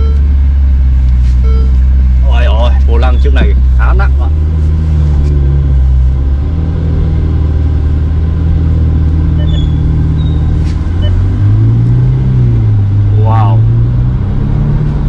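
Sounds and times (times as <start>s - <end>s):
car engine low drone: 0.0s - 15.0s.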